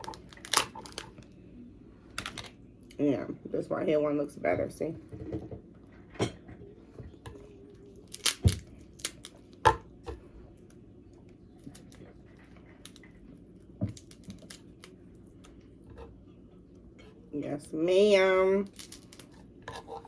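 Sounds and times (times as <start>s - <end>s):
crab shell cracking: 0.0s - 1.2s, 8.0s - 9.6s.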